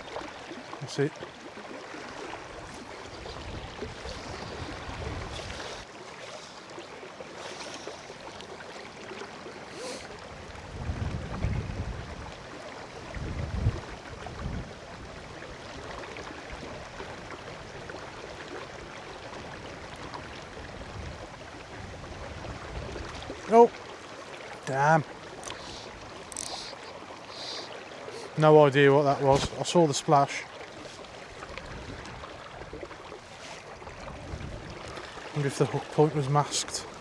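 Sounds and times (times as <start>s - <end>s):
river water rushing: 0.0s - 37.0s
wind gusting on microphone: 2.5s - 5.8s, 10.4s - 15.2s, 31.4s - 32.8s, 33.6s - 35.2s.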